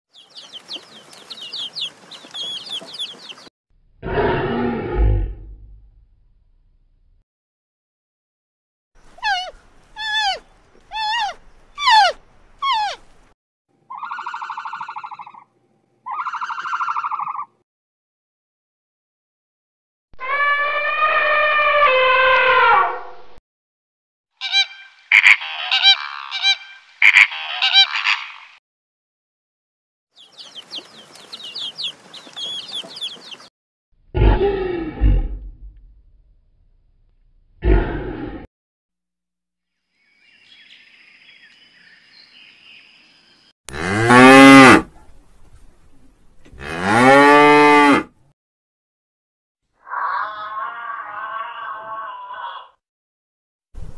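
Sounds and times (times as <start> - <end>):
small birds chirping: 0.1 - 3.5, 9.0 - 13.3, 30.2 - 33.5, 39.9 - 43.5
animal calls: 9.1 - 13.1, 13.9 - 17.5, 24.4 - 28.6, 49.8 - 52.8
low wavering animal call: 9.2 - 13.0, 20.2 - 23.2, 49.8 - 52.8.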